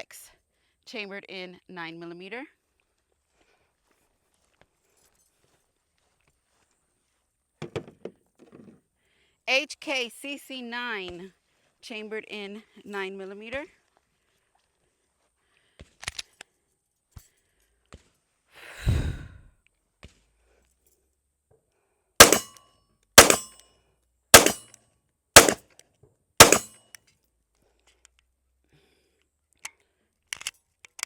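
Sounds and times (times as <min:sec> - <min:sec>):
gun handling clicks: 0:22.2 - 0:22.5, 0:23.2 - 0:23.5, 0:24.4 - 0:24.6, 0:26.4 - 0:26.7, 0:30.4 - 0:31.0
pistol shots: 0:22.2 - 0:22.5, 0:23.2 - 0:23.5, 0:24.4 - 0:24.7, 0:25.4 - 0:25.6, 0:26.4 - 0:26.7.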